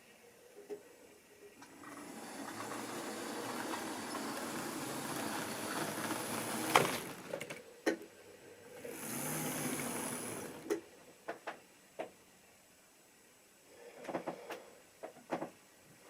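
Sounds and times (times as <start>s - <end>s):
model train running on track: 1.7s - 7.5s, 8.9s - 10.8s.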